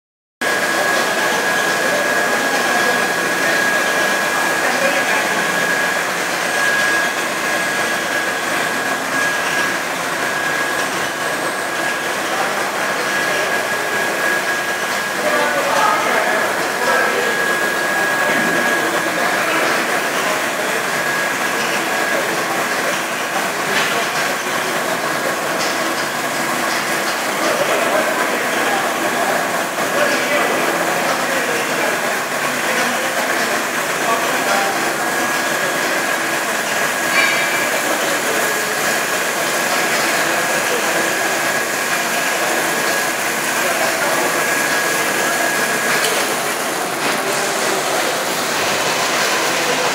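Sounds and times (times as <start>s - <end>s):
car wash jets rushing: 0.4s - 49.9s
thin high whine: 0.5s - 22.9s.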